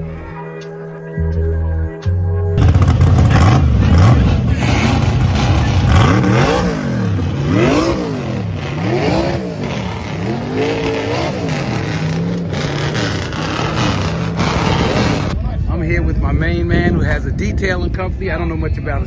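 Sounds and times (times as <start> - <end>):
car engine revving: 2.6 - 15.4.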